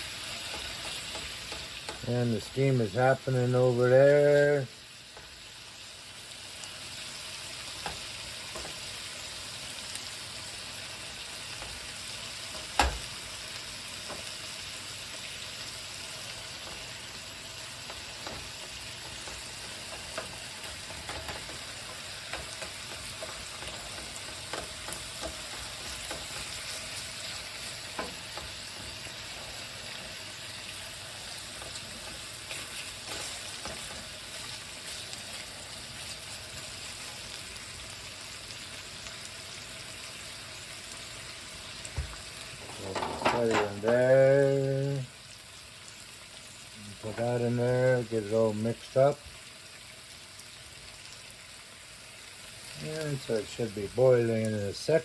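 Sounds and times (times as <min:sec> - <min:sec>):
bacon sizzling and popping: 0:00.0 - 0:55.0.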